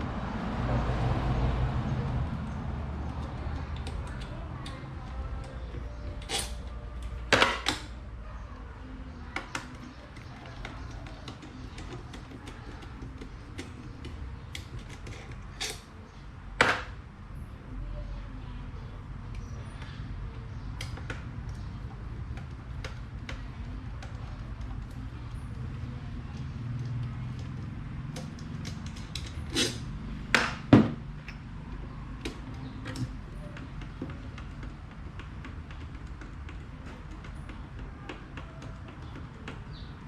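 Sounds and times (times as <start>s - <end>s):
tools clicking and tapping: 3.0s - 8.0s, 9.3s - 15.9s, 20.6s - 40.0s.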